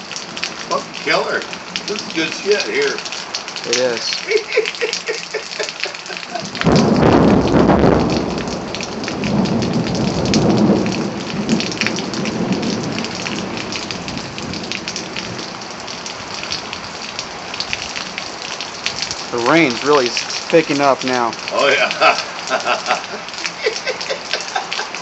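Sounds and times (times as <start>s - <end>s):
heavy rain: 0.0s - 25.0s
thunder rumbling: 5.4s - 16.9s.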